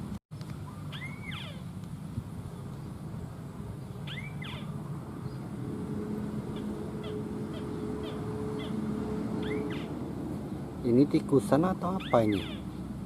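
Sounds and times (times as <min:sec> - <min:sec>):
bird call rising and falling: 0:00.4 - 0:01.7, 0:03.9 - 0:05.5, 0:06.5 - 0:10.0, 0:11.9 - 0:12.8
short high bird chirps: 0:00.7 - 0:01.6, 0:04.0 - 0:04.7, 0:09.4 - 0:09.9.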